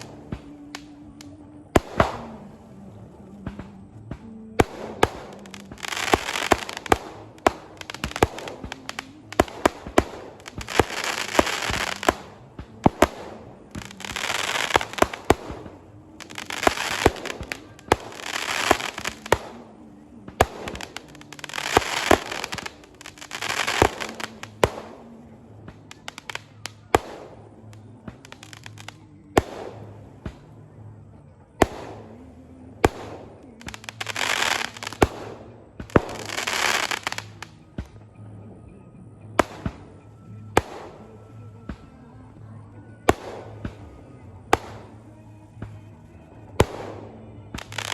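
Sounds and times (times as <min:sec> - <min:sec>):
rush of crackling: 0:00.0 - 0:38.0
firecrackers banging: 0:00.0 - 0:38.2, 0:39.1 - 0:47.9.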